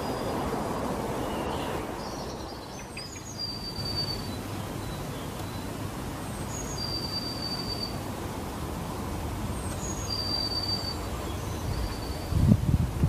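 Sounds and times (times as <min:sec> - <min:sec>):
high bird whistles: 0:01.3 - 0:04.4, 0:09.8 - 0:12.4.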